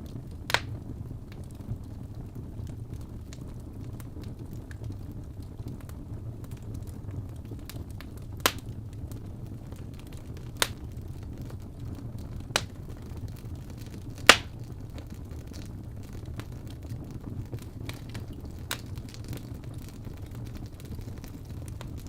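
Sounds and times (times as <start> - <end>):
wood fire burning: 0.0 - 22.0
crackling wood pops: 0.5 - 0.8, 7.6 - 8.8, 9.8 - 11.6, 12.4 - 15.7, 17.5 - 22.0.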